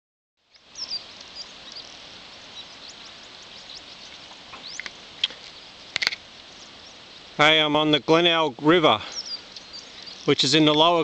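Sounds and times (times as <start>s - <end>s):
bird chirps: 0.4s - 7.3s, 8.8s - 11.0s
outdoor background hiss: 0.4s - 11.0s.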